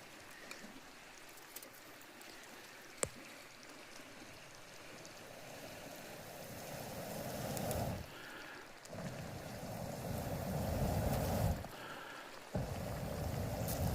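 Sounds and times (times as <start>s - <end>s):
campfire hissing: 4.8s - 13.9s
fire crackle: 5.0s - 13.9s
rushing hiss of air: 5.5s - 13.9s.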